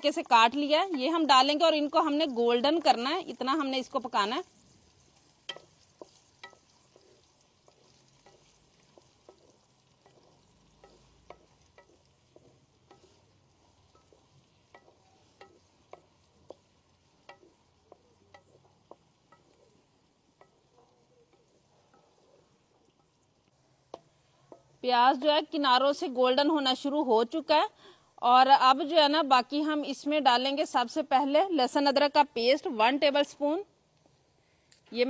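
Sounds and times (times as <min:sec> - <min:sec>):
onions sizzling in oil: 0:00.0 - 0:35.0.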